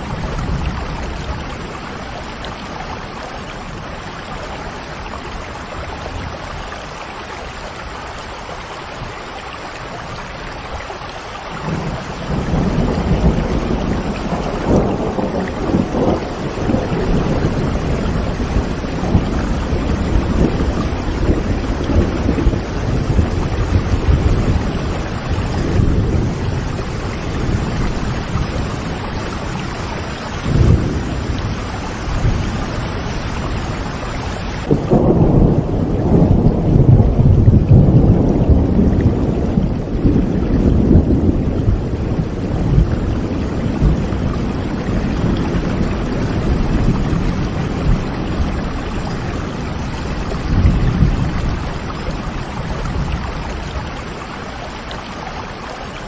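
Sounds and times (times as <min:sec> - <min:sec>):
heavy rain: 0:00.0 - 0:56.0
rolling thunder: 0:11.5 - 0:54.3.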